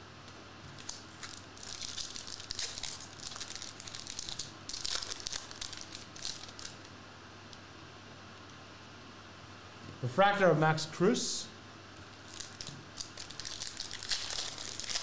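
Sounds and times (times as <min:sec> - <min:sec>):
foil wrapper crinkling and tearing: 0:00.8 - 0:06.9, 0:12.1 - 0:15.0.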